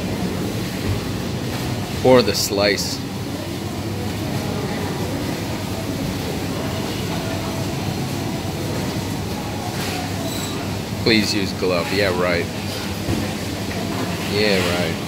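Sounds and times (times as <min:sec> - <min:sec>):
busy supermarket background noise: 0:00.0 - 0:15.0.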